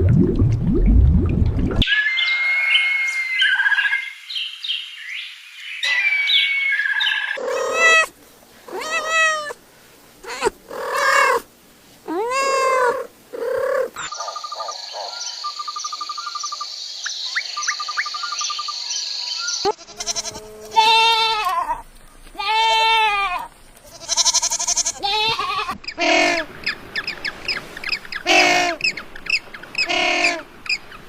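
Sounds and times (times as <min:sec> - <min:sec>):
cat meowing: 0:07.4 - 0:08.1, 0:08.7 - 0:09.6, 0:10.2 - 0:11.4, 0:12.1 - 0:13.1.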